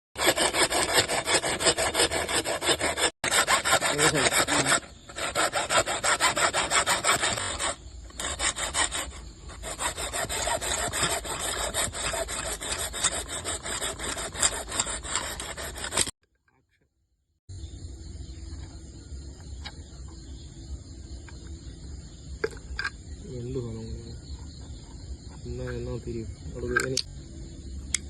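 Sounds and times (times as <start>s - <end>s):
hand tool rasping on pipe: 0.2s - 16.1s.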